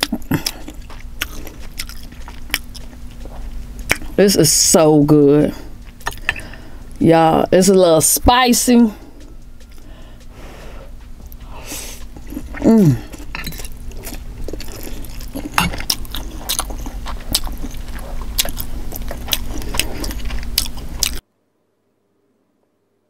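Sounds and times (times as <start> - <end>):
chewing: 0.0 - 4.7, 5.5 - 7.0, 9.0 - 21.2.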